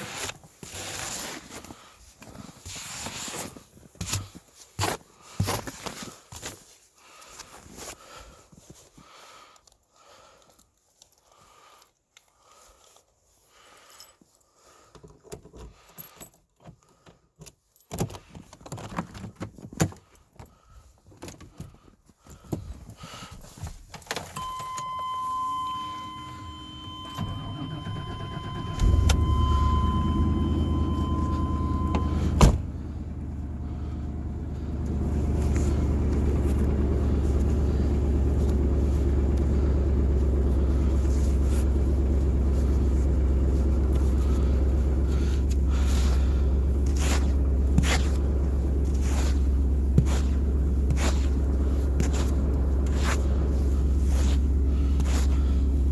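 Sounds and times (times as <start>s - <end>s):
truck engine starting and running: 24.3s - 55.9s
steady warning chime: 24.4s - 32.5s
truck door opening: 24.4s - 32.9s
truck door slamming: 28.6s - 32.8s
footsteps: 46.8s - 55.4s.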